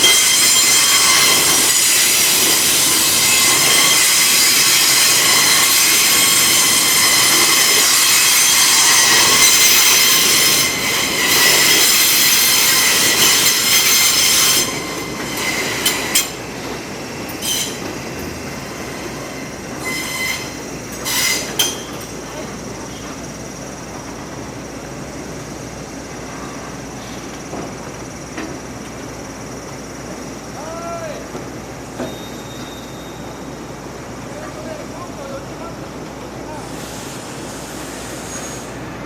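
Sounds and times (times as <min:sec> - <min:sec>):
train rolling noise: 0:00.0 - 0:39.0
train wheels squealing on rails: 0:00.0 - 0:39.0.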